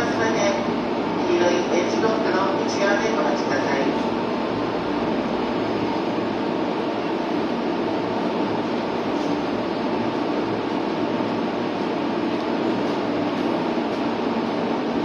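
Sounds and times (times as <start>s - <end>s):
train equipment humming: 0.0s - 15.0s.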